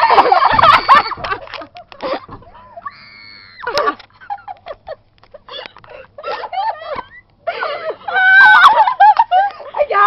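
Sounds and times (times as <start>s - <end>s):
girls squeaking and muttering: 2.0s - 4.0s
high-pitched scream: 2.8s - 4.0s.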